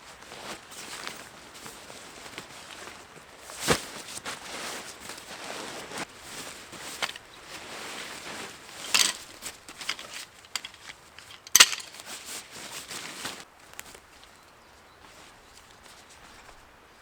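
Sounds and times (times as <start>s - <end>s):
rustling and handling sounds: 0.0s - 16.8s.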